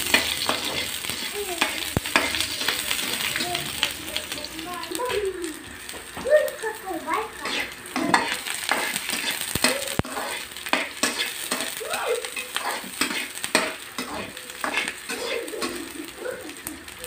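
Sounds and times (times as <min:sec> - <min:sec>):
garlic and onion sizzling in oil: 0:00.0 - 0:17.0
utensil scraping and knocking pan: 0:07.4 - 0:15.9.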